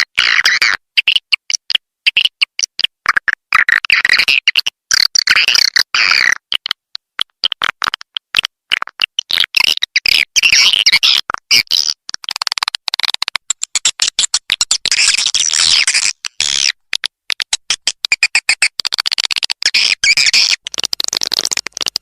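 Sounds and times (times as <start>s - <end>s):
swiftlets twittering and chirping: 17.6s - 22.0s.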